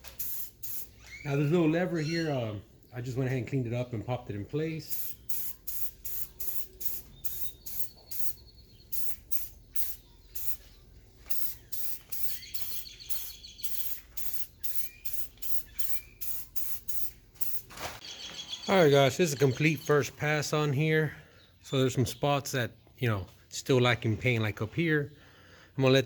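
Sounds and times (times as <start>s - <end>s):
aerosol spray paint hissing: 0.0s - 1.0s, 4.9s - 17.7s.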